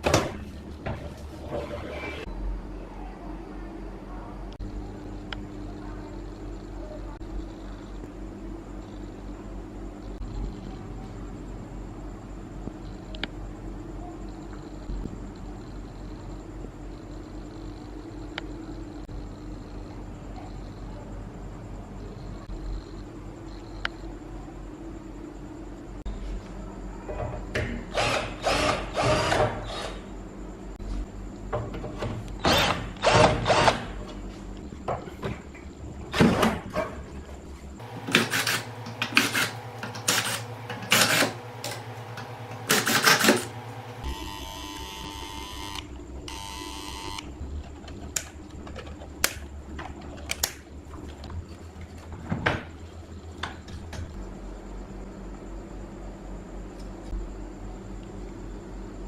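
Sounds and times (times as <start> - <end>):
low electrical hum: 0.0 - 59.0
small power tool bursts: 27.9 - 30.0, 42.6 - 47.2.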